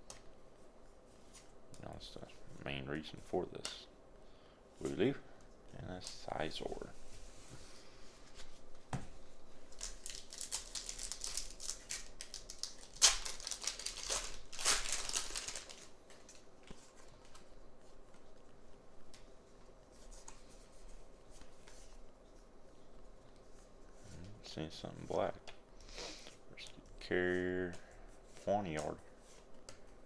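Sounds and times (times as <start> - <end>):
plastic packaging crinkling and tearing: 9.7 - 17.4.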